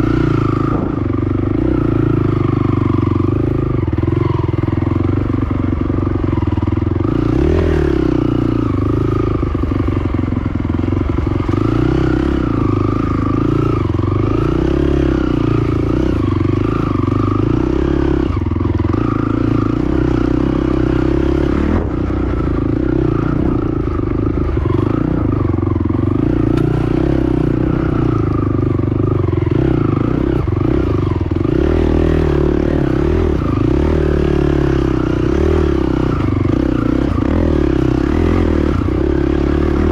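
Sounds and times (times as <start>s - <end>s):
quad bike engine: 0.0s - 39.9s
clatter and scraping over rough ground: 18.3s - 39.9s.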